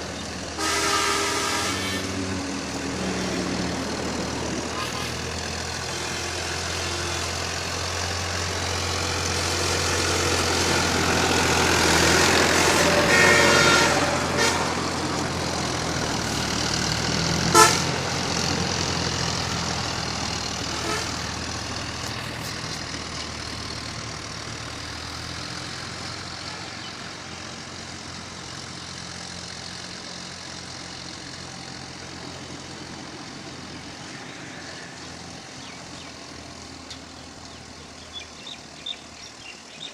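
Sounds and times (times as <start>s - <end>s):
tractor engine running: 0.0s - 39.9s
tractor horn toot: 0.5s - 2.3s, 4.7s - 8.2s, 12.4s - 15.0s, 17.4s - 18.2s, 20.6s - 22.6s.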